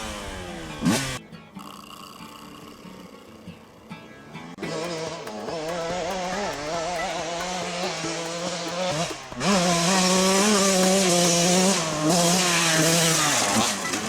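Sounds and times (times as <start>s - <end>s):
motocross engine revving: 0.0s - 1.2s, 4.6s - 14.0s.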